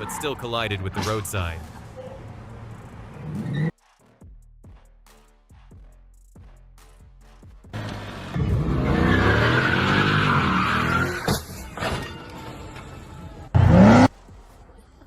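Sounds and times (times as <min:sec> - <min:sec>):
tyres squealing: 0:00.0 - 0:02.2, 0:08.4 - 0:14.1
car engine running: 0:13.4 - 0:14.4
loud rising sound: 0:13.5 - 0:14.1.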